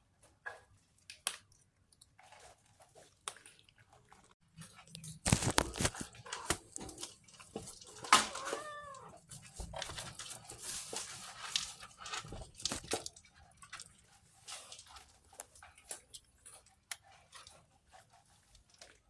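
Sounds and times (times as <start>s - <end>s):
cat crunching dry food: 4.5s - 17.7s
cat meowing: 7.9s - 9.2s.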